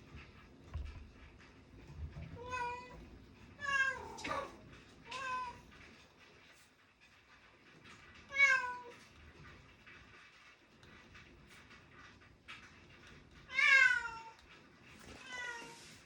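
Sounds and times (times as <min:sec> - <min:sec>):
cat meowing: 0:13.5 - 0:14.4.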